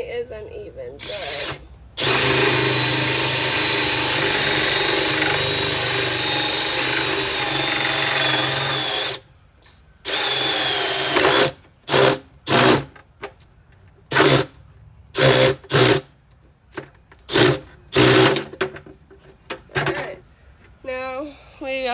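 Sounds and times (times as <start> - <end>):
electric drill boring into bucket: 1.0 - 9.2, 10.1 - 13.0, 14.1 - 14.5, 15.2 - 16.1, 17.3 - 18.6.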